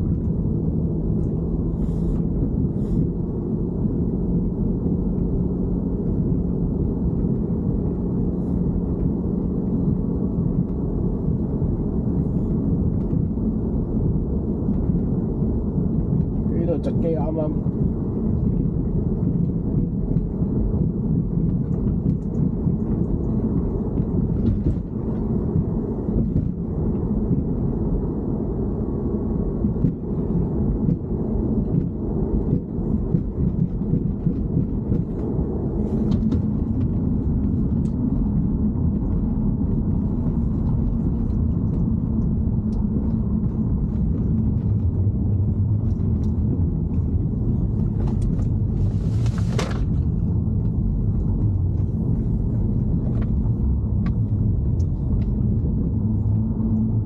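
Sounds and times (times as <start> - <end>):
car engine low rumble: 0.0 - 57.0.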